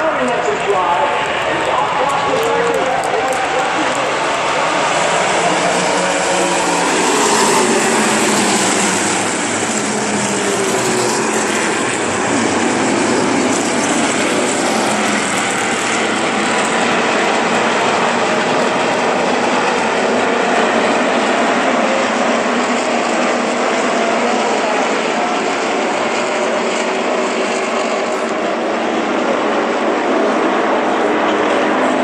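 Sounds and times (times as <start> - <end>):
race truck engines passing: 0.0 - 32.0.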